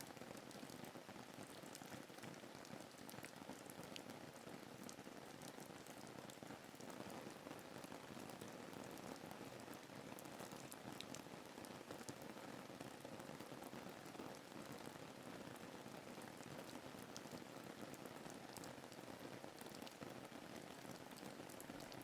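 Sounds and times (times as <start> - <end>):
faint raindrop ticks: 0.0 - 22.0
soft steady rain: 0.0 - 22.0.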